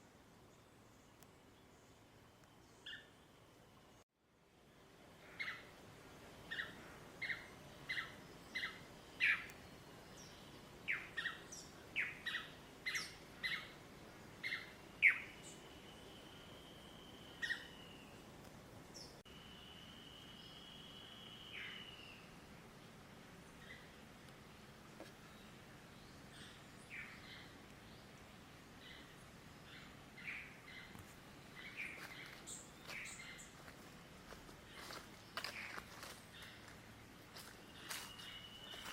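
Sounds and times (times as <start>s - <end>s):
birds chirping: 20.3s - 38.9s.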